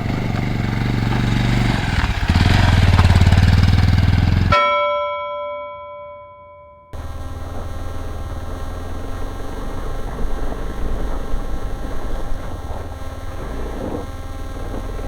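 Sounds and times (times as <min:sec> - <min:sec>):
motorcycle engine rumble: 0:00.0 - 0:04.8, 0:05.5 - 0:15.0
wind rushing over microphone: 0:07.2 - 0:15.0.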